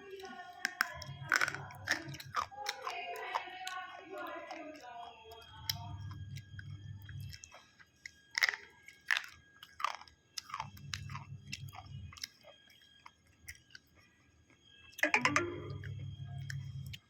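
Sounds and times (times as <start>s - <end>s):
chewing crunchy food: 0.0s - 15.0s, 15.7s - 17.0s.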